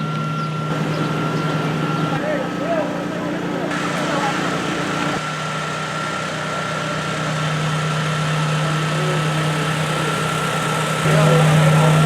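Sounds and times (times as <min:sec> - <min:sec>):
constant high tone: 0:00.2 - 0:05.3
vehicle engine idling: 0:00.4 - 0:12.0.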